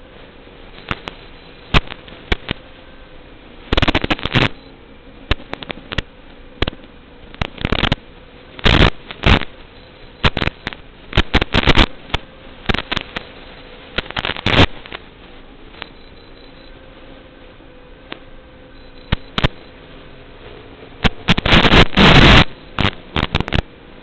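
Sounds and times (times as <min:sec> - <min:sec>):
faint steady hum: 0:00.0 - 0:24.0
sharp cracks and knocks: 0:05.3 - 0:08.0, 0:10.2 - 0:13.3, 0:22.8 - 0:23.7.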